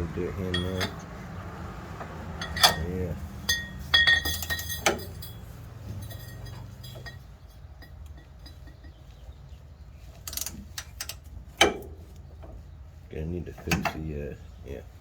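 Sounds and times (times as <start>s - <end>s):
small metal clinks: 0.5s - 1.0s, 2.4s - 9.0s.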